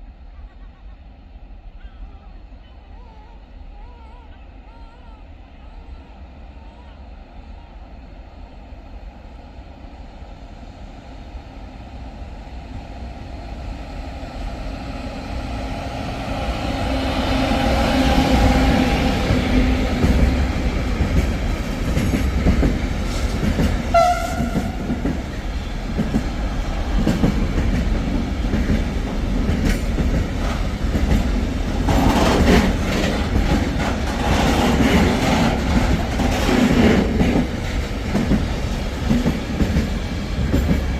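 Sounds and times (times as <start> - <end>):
train passing: 0.0 - 40.9
train horn: 23.9 - 25.0.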